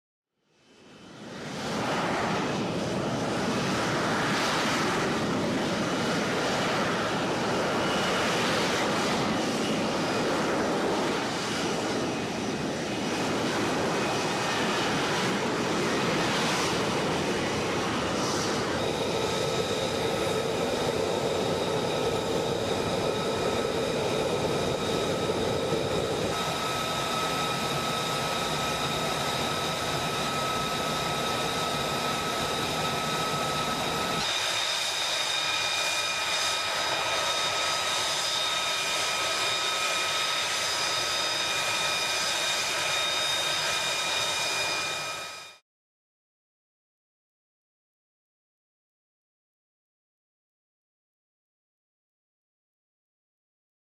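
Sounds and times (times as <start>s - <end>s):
jet engine roaring with turbine whine: 0.5s - 45.6s.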